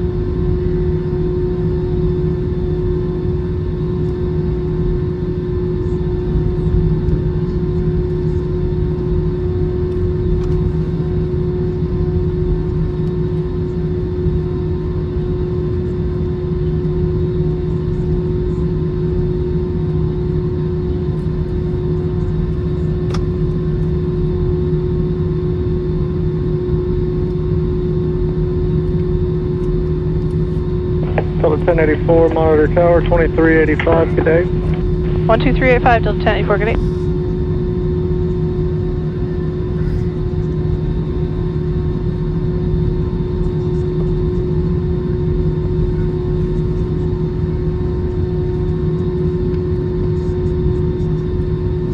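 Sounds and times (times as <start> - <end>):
airplane cabin rumble: 31.0 - 36.9.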